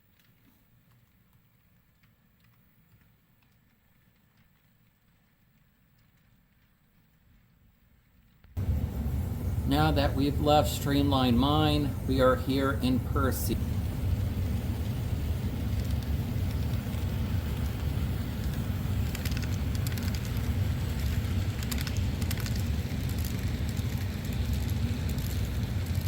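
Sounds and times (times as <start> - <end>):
light clicking of train wheels: 0.0 - 26.0
model train rumbling: 8.6 - 26.0.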